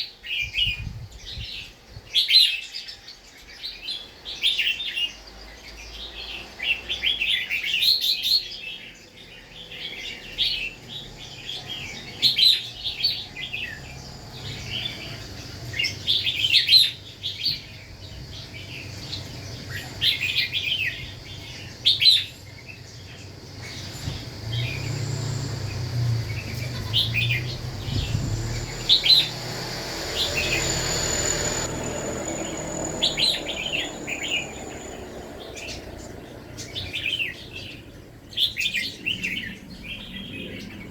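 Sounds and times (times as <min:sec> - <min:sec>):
birds singing chirpy phrases: 0:22.4 - 0:37.8.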